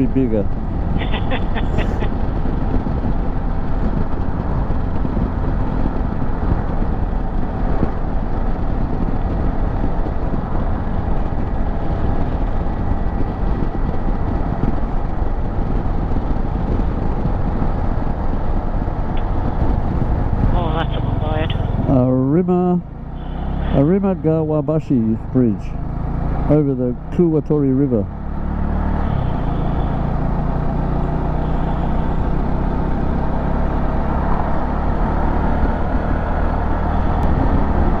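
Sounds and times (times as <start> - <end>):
wind noise: 0.0 - 22.0, 34.2 - 38.0
motorcycle engine: 19.2 - 38.0.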